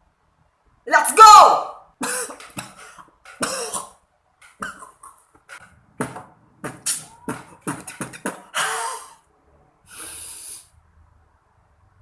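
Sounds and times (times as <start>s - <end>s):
child beatboxing: 6.7s - 8.4s
hissing cymbal-like mouth sounds: 9.9s - 10.8s.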